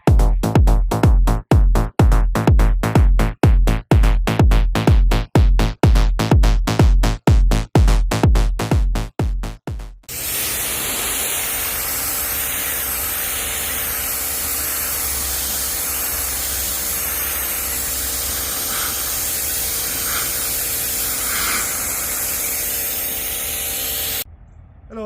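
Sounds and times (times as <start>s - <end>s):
pressure washer motor humming: 10.1s - 24.2s
water spray hissing: 10.1s - 24.3s.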